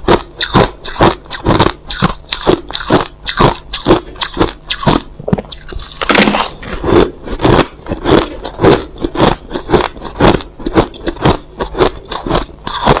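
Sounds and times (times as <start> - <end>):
person chewing crushed ice: 0.0 - 13.0.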